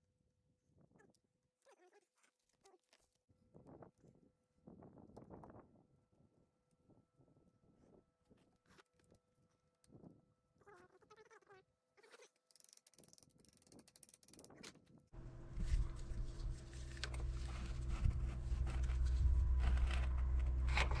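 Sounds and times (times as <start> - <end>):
low machine hum: 15.2 - 21.0.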